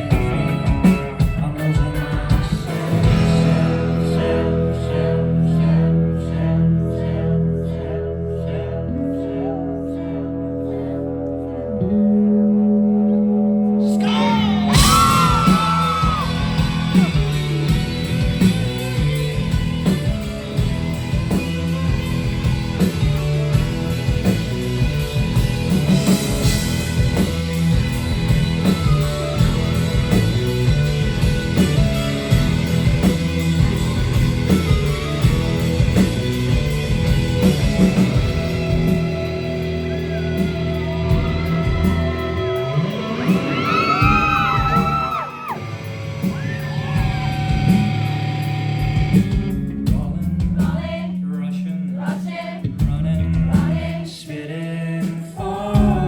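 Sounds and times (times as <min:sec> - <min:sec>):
rock band playing live: 0:00.0 - 0:06.0, 0:11.9 - 0:51.0, 0:52.0 - 0:54.0, 0:55.0 - 0:56.0
person singing: 0:12.8 - 0:17.6, 0:50.7 - 0:56.0.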